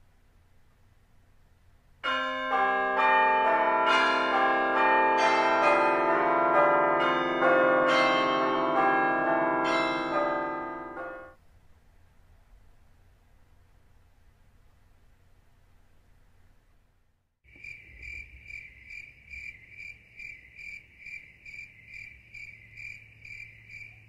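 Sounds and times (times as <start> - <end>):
chiming bells music: 2.0 - 11.4.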